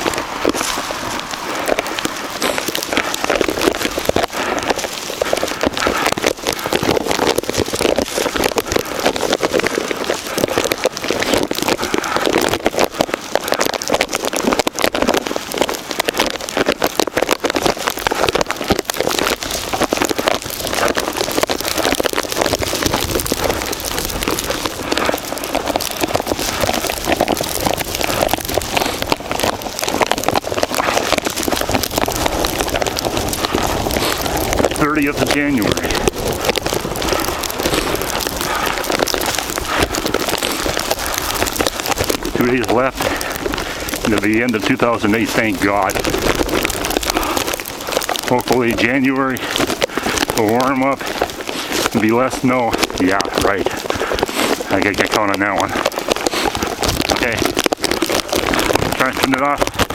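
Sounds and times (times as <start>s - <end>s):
strong wind on microphone: 22.4s - 44.2s, 56.4s - 59.9s.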